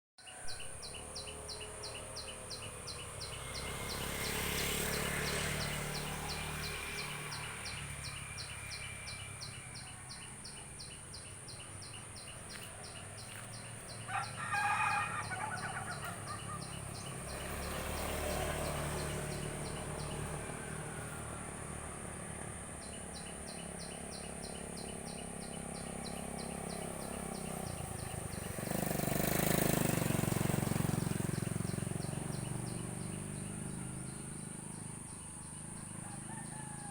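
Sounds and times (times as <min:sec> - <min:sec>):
rooster crowing: 0:13.9 - 0:16.8, 0:35.9 - 0:36.9.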